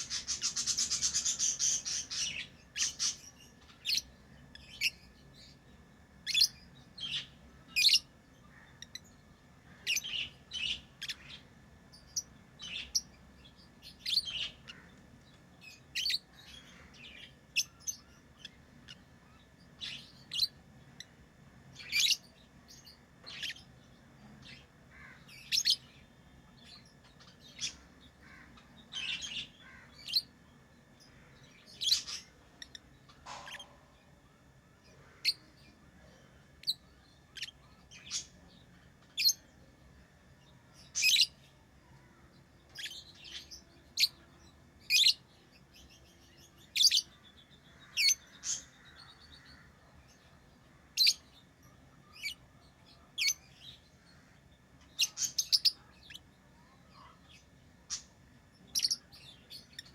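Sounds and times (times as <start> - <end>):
lovebirds chirping: 0.0 - 34.2, 40.4 - 59.9.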